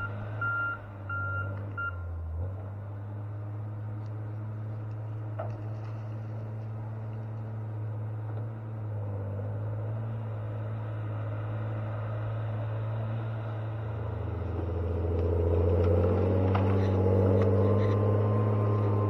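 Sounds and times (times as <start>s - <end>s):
machine engine humming: 14.4s - 19.0s.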